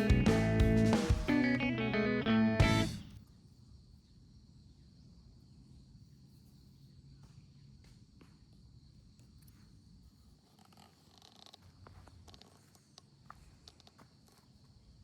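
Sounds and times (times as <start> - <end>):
electric guitar music: 0.0 - 3.2.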